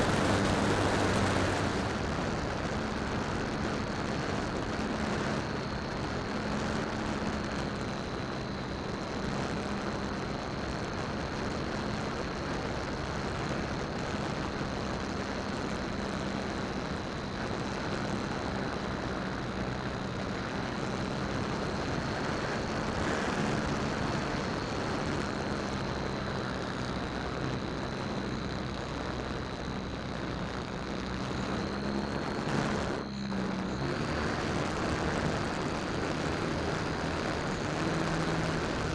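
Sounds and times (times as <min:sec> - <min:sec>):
wind rush: 0:00.0 - 0:16.0
high electric motor whine: 0:00.0 - 0:38.9
propeller noise: 0:00.0 - 0:38.9.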